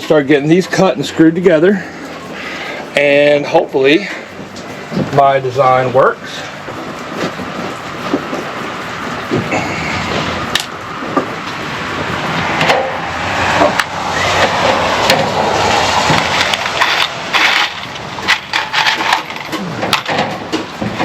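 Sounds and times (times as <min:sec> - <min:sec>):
steady rushing noise: 0:00.0 - 0:21.0
wooden boards knocking and clattering: 0:14.4 - 0:21.0.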